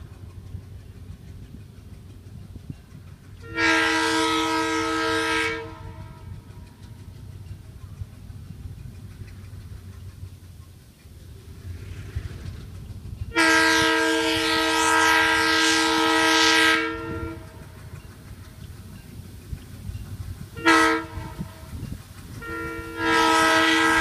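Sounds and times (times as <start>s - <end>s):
diesel engine rumble: 0.0s - 24.0s
locomotive air horn: 3.4s - 6.4s, 13.3s - 17.7s, 20.6s - 21.7s, 22.4s - 24.0s.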